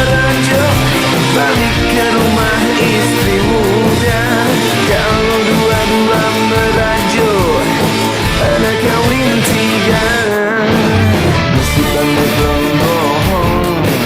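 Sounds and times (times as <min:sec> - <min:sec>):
wavering sliding melody line: 0:00.0 - 0:11.0
rock song with electric guitar: 0:00.0 - 0:14.0.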